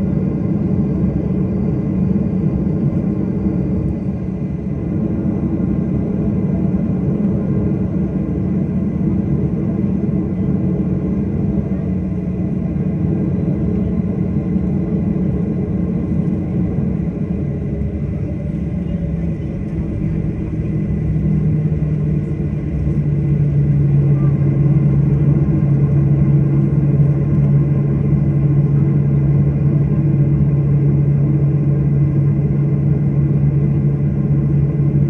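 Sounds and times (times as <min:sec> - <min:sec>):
jet engines rumbling in cabin: 0:00.0 - 0:35.0
low hum: 0:14.6 - 0:35.0.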